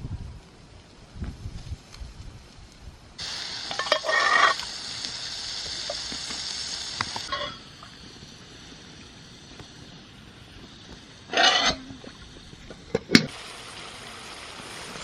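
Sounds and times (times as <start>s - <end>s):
food sizzling in a frying pan: 3.2s - 15.0s.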